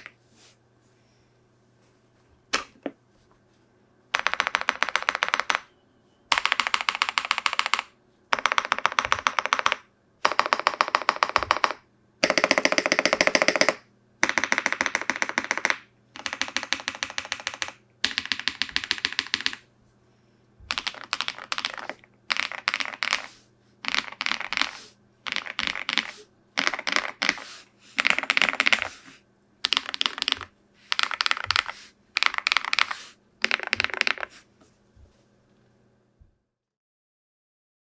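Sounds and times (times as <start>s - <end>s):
typing on mechanical keyboard: 4.1s - 5.7s, 6.3s - 19.6s, 20.7s - 28.9s, 29.6s - 34.3s.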